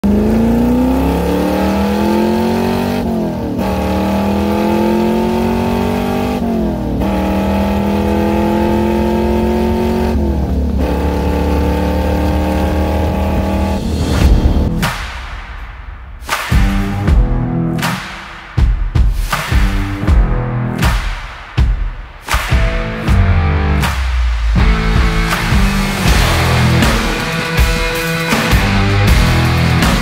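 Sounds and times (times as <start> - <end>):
car engine accelerating hard: 0.0 - 14.8.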